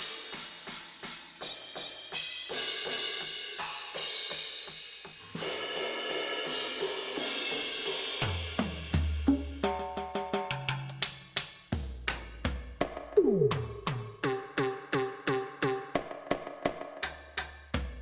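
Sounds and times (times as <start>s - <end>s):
cymbals and hi-hat: 0.0s - 9.8s, 10.8s - 16.3s.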